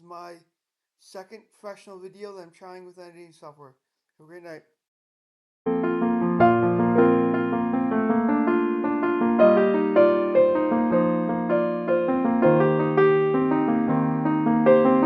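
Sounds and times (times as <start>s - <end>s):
gentle piano piece: 5.7s - 15.0s.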